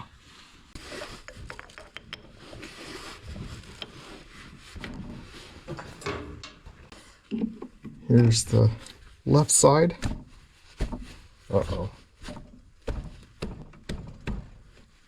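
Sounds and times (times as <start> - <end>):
scraping and rubbing: 0.0 - 7.7, 8.5 - 13.9.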